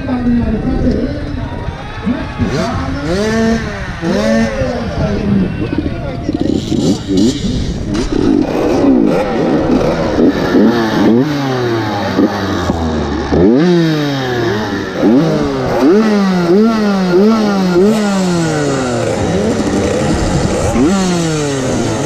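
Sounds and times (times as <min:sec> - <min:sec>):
motocross bikes revving: 0:00.0 - 0:22.0
motorbike revving in bursts: 0:02.0 - 0:22.0.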